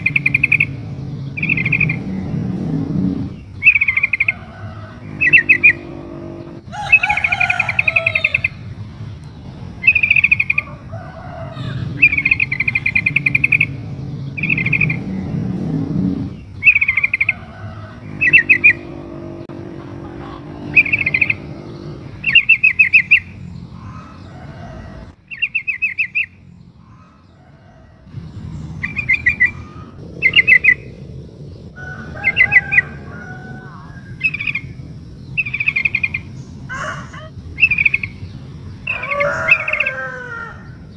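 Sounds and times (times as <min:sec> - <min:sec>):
bird chattering calls: 0:00.0 - 0:08.7, 0:09.7 - 0:24.5, 0:32.1 - 0:40.5
low background rumble: 0:00.0 - 0:25.2, 0:26.3 - 0:39.9.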